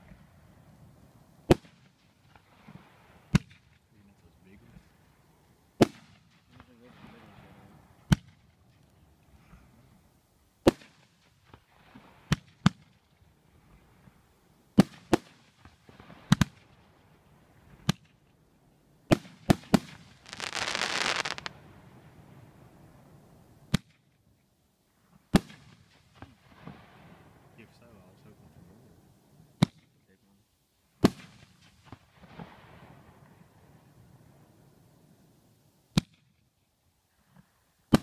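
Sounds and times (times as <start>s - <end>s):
fireworks bangs: 19.1s - 21.6s
firework hissing burst: 20.2s - 21.5s.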